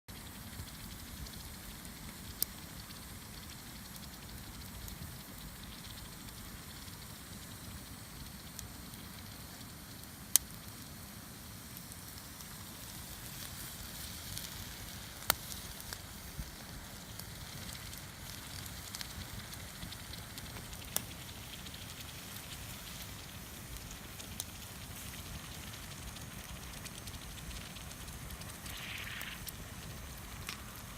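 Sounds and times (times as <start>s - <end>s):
campfire crackling and popping: 0.1s - 30.9s.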